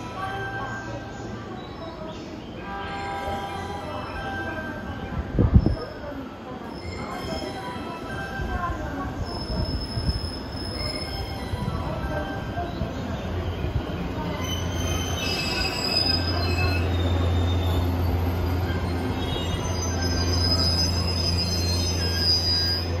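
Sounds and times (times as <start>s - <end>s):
train wheels squealing: 6.6s - 23.0s.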